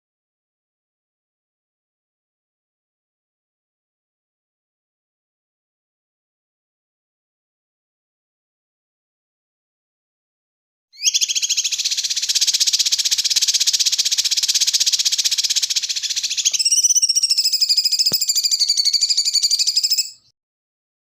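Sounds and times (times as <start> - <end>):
songbird buzzing trill: 11.0 - 20.2.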